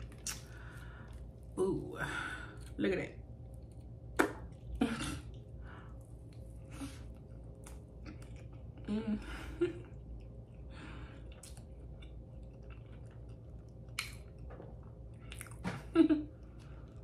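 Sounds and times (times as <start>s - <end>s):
wet mouth clicks: 0.1s - 0.6s, 13.9s - 14.3s
chewing food: 3.3s - 8.9s, 9.8s - 15.8s.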